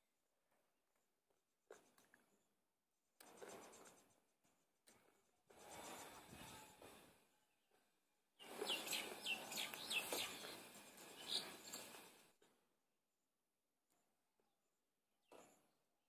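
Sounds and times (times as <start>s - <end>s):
falling bird chirps: 8.4s - 12.2s
background hiss: 8.4s - 12.3s.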